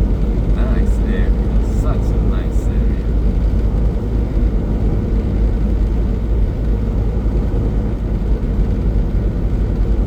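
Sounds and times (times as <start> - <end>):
truck engine and road rumble: 0.0 - 10.0.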